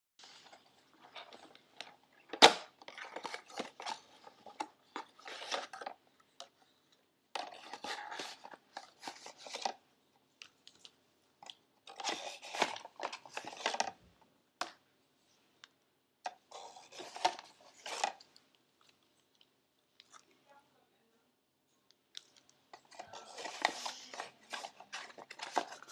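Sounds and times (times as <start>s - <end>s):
plastic packaging crinkling: 0.2s - 6.0s, 7.4s - 9.8s, 11.8s - 14.0s, 16.5s - 18.2s, 22.7s - 25.9s.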